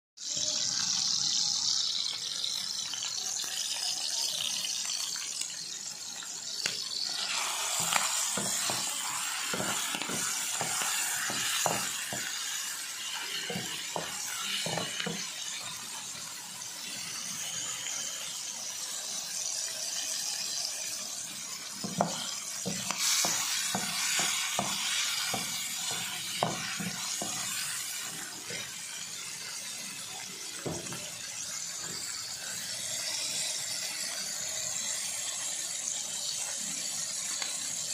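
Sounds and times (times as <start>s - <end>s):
liver sizzling in hot oil: 0.2s - 37.9s
spatula scraping a pan: 7.1s - 15.4s, 21.9s - 29.0s.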